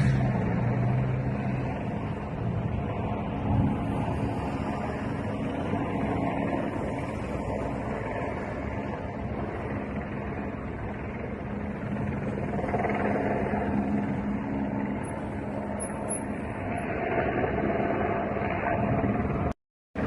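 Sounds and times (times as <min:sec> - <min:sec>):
vehicle engine humming: 0:00.0 - 0:19.5
outdoor rumble: 0:00.0 - 0:20.0.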